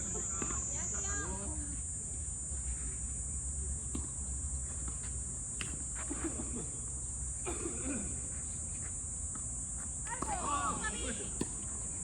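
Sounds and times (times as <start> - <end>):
high-pitched insect drone: 0.0 - 1.9.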